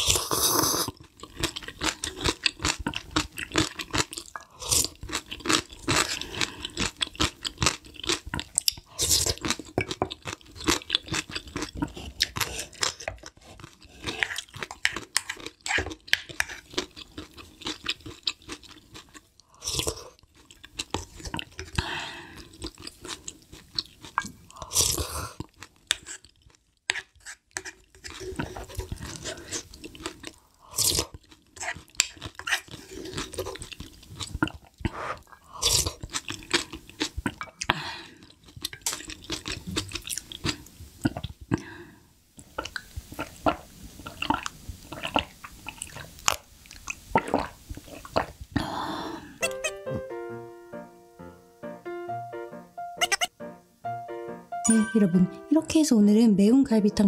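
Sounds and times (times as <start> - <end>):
close chewing with mouth clicks: 0.0 - 41.6, 42.4 - 48.6
spoon scraping stone pot: 26.9 - 29.2.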